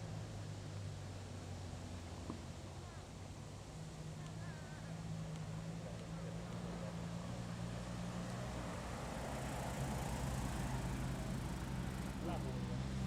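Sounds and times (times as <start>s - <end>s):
car engines pulling away: 6.7s - 13.0s.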